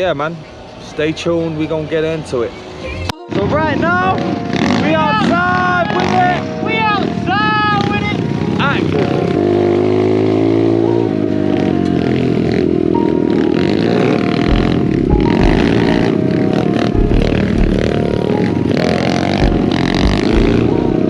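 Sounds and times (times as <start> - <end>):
pit bike engines revving: 3.3 - 21.0
music with heavy bass beat: 14.4 - 16.1, 16.9 - 18.3, 19.4 - 21.0.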